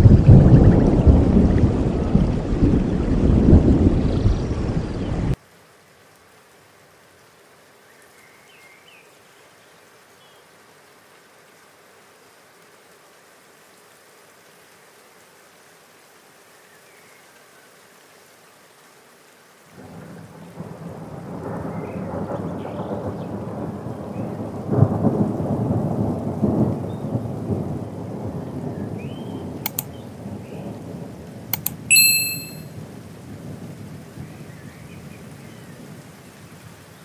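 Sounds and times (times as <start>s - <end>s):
rolling thunder: 0.0s - 5.4s, 19.8s - 31.5s
steady rain: 0.0s - 31.9s, 32.6s - 37.0s
sharp clicks: 29.7s - 29.9s, 31.6s - 32.6s
short bright ding: 31.6s - 32.7s.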